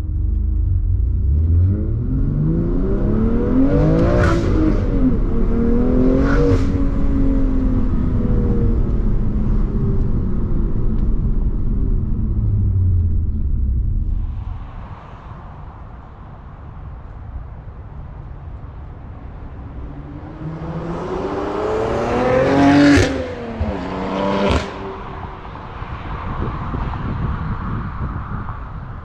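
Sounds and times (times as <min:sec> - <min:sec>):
car engine accelerating hard: 0:00.0 - 0:14.2, 0:20.1 - 0:25.6
exhaust crack at upshift: 0:07.7 - 0:14.6.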